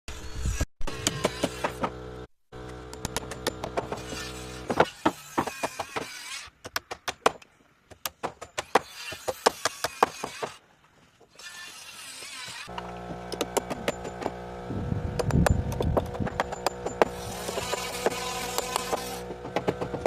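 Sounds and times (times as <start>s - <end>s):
knocking on timber: 18.8s - 20.0s.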